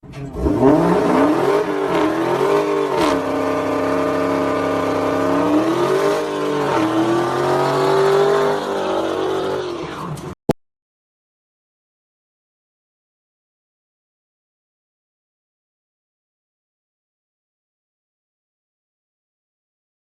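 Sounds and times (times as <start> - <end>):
engine revving: 0.0 - 10.4.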